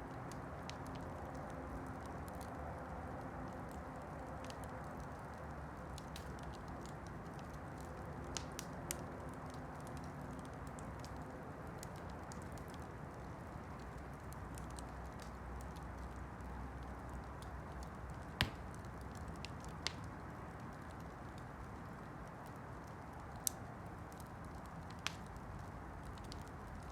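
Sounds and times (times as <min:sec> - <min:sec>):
campfire crackling: 0:00.0 - 0:26.9
loud pop of burning wood: 0:18.4 - 0:18.8.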